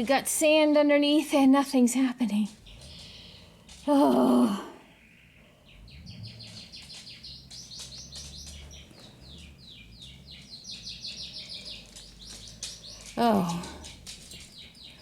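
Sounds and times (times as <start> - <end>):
bird chirping: 2.5 - 3.9, 4.8 - 15.0.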